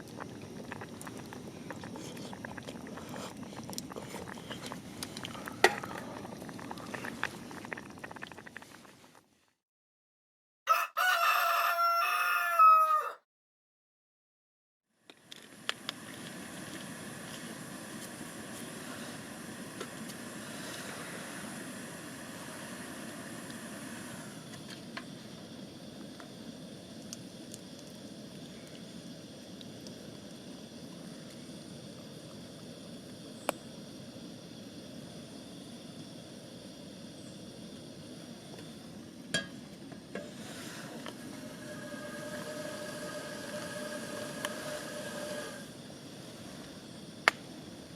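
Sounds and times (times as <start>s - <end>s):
wood campfire crackling: 0.0s - 9.2s, 24.8s - 34.5s
campfire rushing noise: 0.0s - 9.3s, 15.2s - 47.9s
fire crackles: 0.0s - 9.3s, 15.2s - 47.9s.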